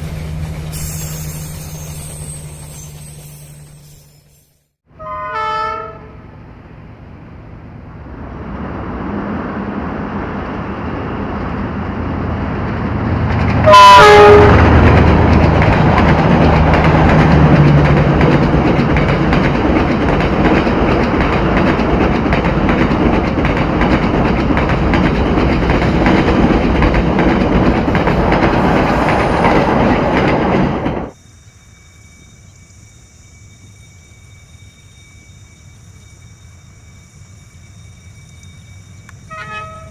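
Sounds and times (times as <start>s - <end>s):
passing train rumble: 0.0s - 39.9s
train horn: 4.9s - 6.4s, 13.6s - 14.8s, 39.2s - 39.9s.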